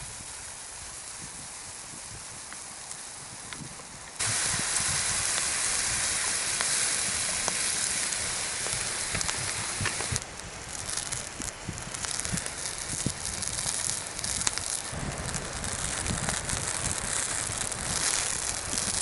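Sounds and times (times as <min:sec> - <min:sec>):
fire crackling: 0:00.0 - 0:19.0
food sizzling in a hot pan: 0:00.0 - 0:19.0.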